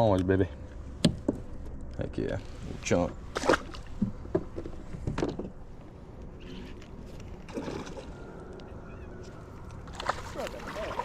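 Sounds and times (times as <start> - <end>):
river water sloshing and splashing: 3.2 - 4.3, 7.1 - 8.4, 9.8 - 11.0.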